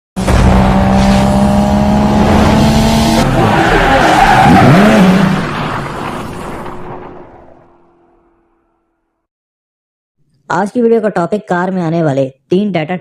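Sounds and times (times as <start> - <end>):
car engine note: 0.2 - 6.0
car screeching: 0.3 - 8.2.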